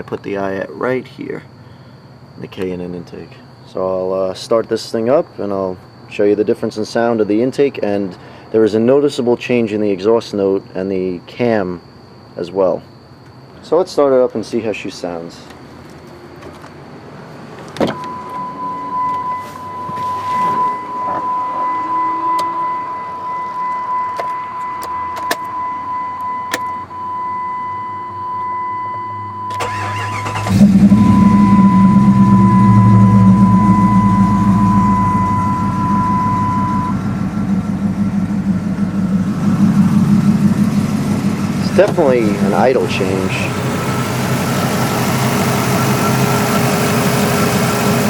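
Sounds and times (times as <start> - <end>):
steady high tone: 17.9 - 48.0
car engine cranking and idling: 29.5 - 48.0.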